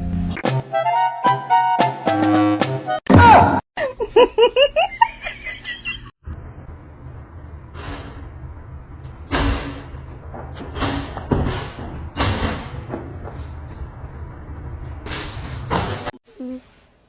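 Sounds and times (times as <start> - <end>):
low steady rumble: 6.2 - 16.1
sudden thumps: 6.2 - 16.2.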